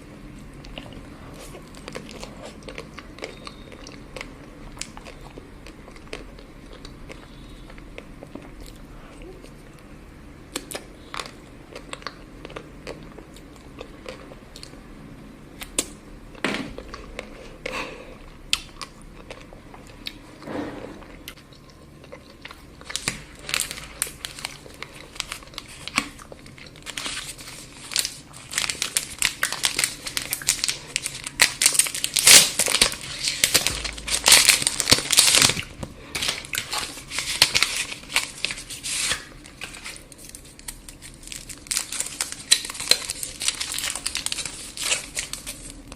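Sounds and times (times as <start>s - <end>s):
wrapper crinkling and tearing: 22.8s - 45.9s.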